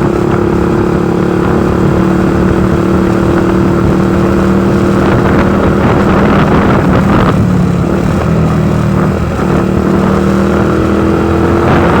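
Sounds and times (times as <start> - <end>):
motorcycle engine running: 0.0 - 12.0
wind noise: 0.0 - 12.0.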